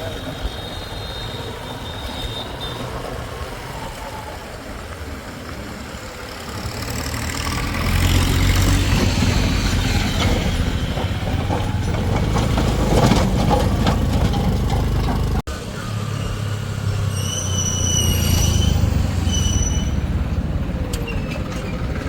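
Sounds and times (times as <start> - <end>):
diesel engine running: 4.7 - 17.1.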